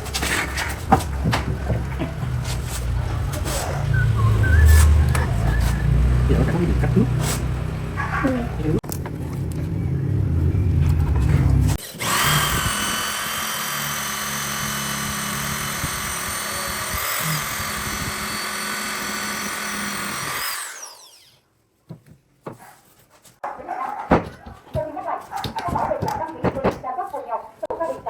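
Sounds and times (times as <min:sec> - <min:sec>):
power tool whining: 0:00.0 - 0:08.8, 0:11.7 - 0:21.4.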